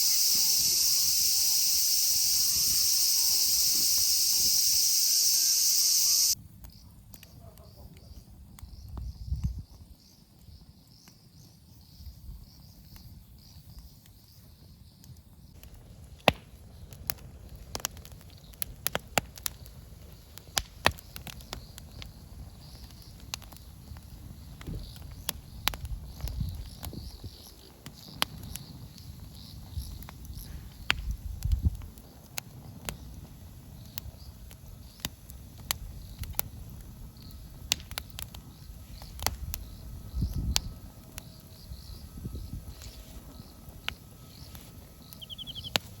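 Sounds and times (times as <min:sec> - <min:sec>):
insects chirring: 0:00.0 - 0:06.8, 0:19.5 - 0:46.0
wood fire crackling: 0:00.0 - 0:07.3, 0:13.3 - 0:46.0.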